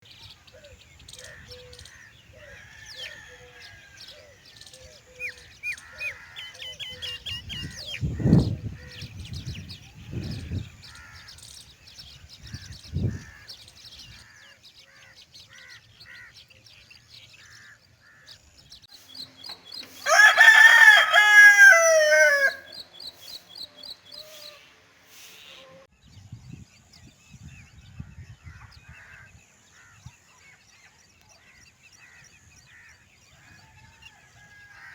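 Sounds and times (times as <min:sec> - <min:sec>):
small birds chirping: 0:00.0 - 0:20.1, 0:20.7 - 0:25.8
rooster crowing: 0:02.4 - 0:04.3, 0:20.0 - 0:22.8.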